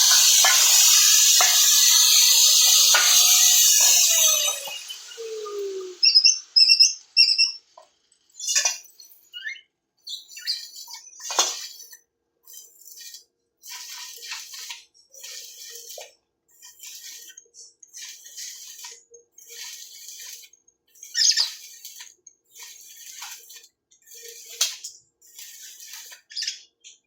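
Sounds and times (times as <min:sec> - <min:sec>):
scratchy noises: 0:00.0 - 0:06.3, 0:10.4 - 0:26.5
high bird chirps: 0:02.1 - 0:07.6, 0:08.4 - 0:11.2, 0:21.0 - 0:21.8.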